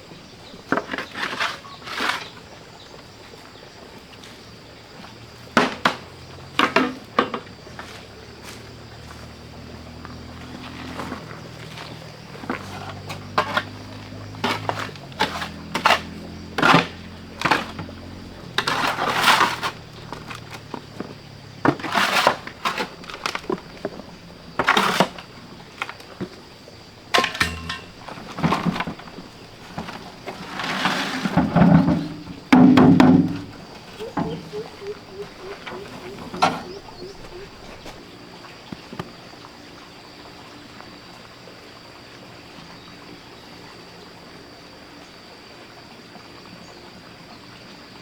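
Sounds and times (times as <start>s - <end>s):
scraping and rustling: 10.4s - 26.4s, 27.1s - 38.0s
knocks and clatters: 27.1s - 37.9s.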